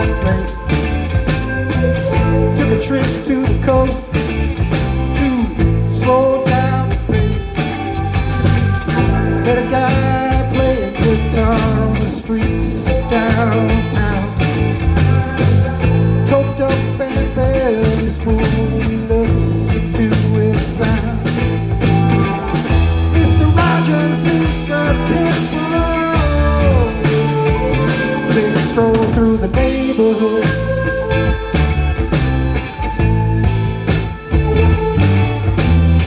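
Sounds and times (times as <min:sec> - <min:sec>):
live blues rock band: 0:00.0 - 0:36.0.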